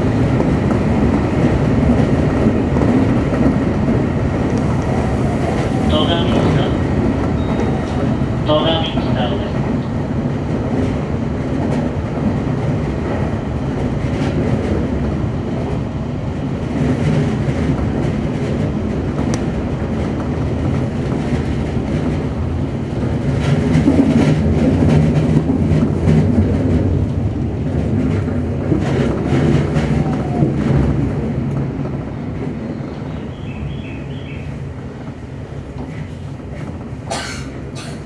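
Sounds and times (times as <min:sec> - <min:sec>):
clacks over rail joints: 0:00.0 - 0:15.8, 0:16.6 - 0:32.6, 0:33.7 - 0:38.0
train wheels rumbling on rail: 0:00.0 - 0:38.0.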